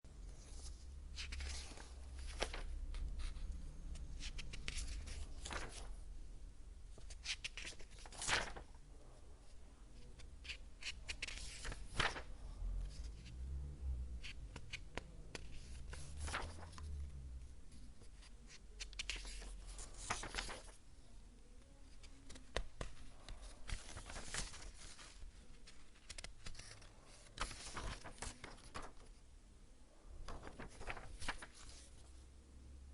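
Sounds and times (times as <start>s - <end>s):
paper pages turning: 0.4s - 3.5s, 4.2s - 6.0s, 7.0s - 8.8s, 10.2s - 13.3s, 14.5s - 17.1s, 17.8s - 20.8s, 21.8s - 29.2s, 30.2s - 32.2s.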